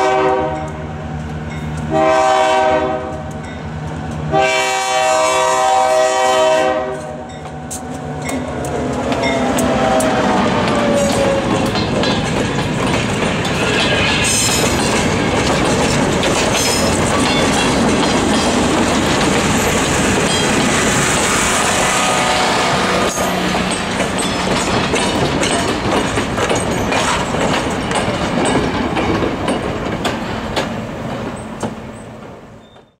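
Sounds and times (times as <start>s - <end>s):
train cars rolling past: 0.0s - 33.0s
wheels clicking over rail joints: 7.0s - 21.3s, 23.0s - 33.0s.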